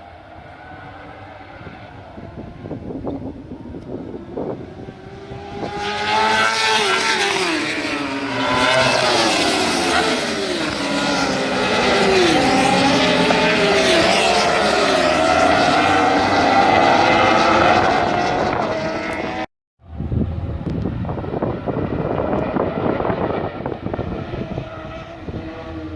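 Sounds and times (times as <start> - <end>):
racing motorbike engines: 0.0 - 25.9.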